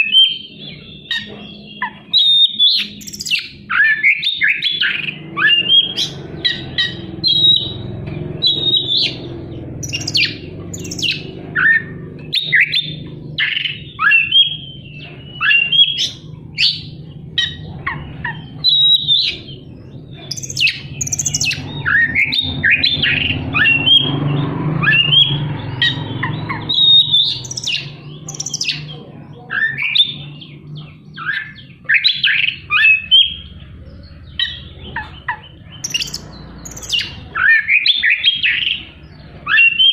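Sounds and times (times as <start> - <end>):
songbird singing whistles and chatter: 0.0 - 39.9.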